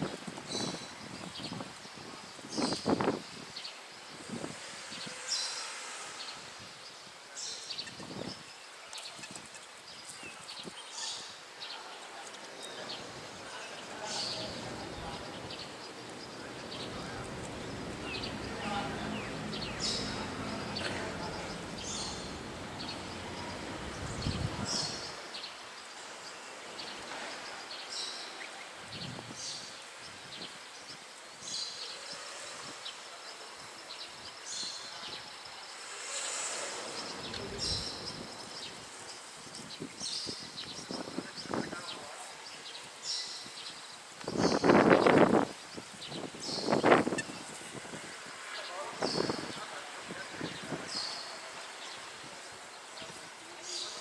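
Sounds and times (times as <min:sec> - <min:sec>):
bird chirps and calls: 0:00.0 - 0:25.6, 0:36.0 - 0:52.2, 0:52.9 - 0:54.0
outdoor background noise: 0:00.0 - 0:54.0
steady background hiss: 0:00.0 - 0:54.0.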